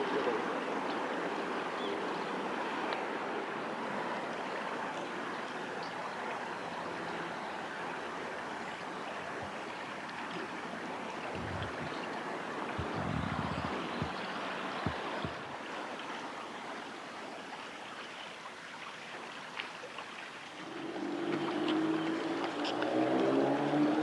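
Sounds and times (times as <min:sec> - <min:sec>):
river water rushing: 0:00.0 - 0:24.0
short low thumps: 0:12.8 - 0:15.4.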